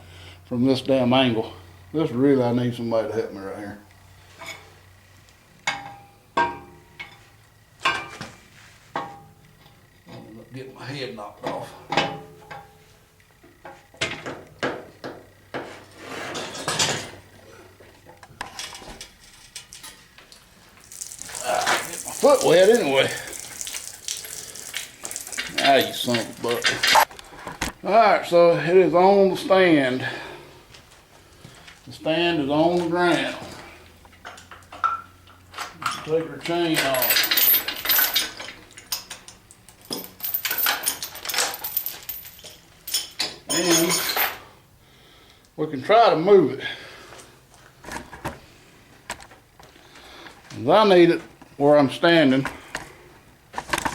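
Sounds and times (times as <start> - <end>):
metal knocks and clanks: 11.4 - 12.8
metal scraping rattle: 15.9 - 17.2
metal chain clinking and rattling: 20.8 - 27.1, 34.8 - 44.5.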